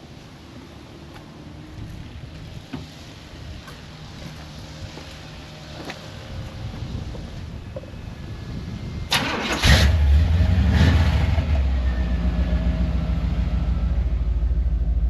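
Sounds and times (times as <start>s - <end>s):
engine deep idle: 12.6s - 15.0s.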